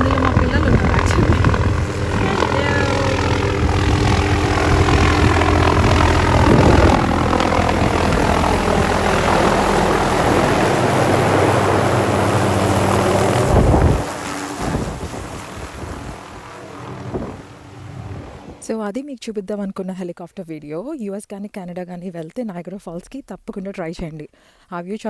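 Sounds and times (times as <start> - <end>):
helicopter engine and rotor: 0.0 - 18.6
rotor downwash on microphone: 0.0 - 18.6.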